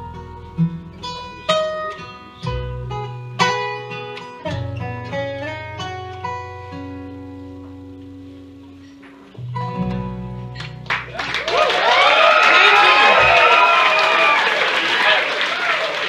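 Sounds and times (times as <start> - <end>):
acoustic guitar picking: 0.0 - 11.4
low bass notes: 0.0 - 11.5.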